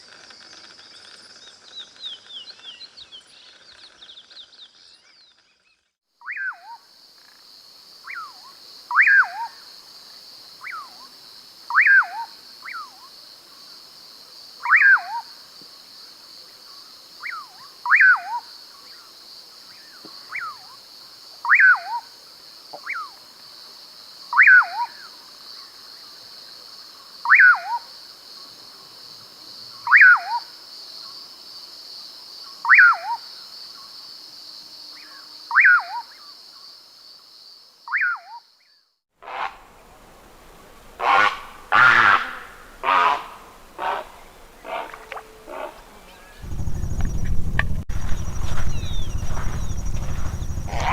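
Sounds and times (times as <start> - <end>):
high-pitched buzz: 46.4 - 50.9.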